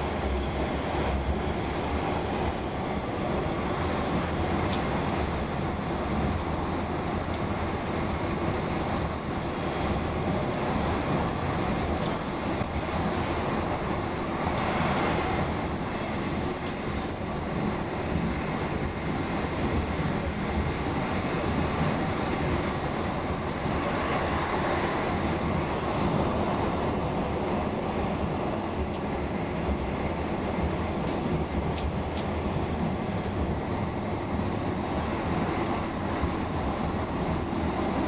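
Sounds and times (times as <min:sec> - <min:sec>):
train wheels squealing: 0:00.0 - 0:01.2, 0:25.6 - 0:34.8
train wheels rumbling on rail: 0:00.0 - 0:38.0.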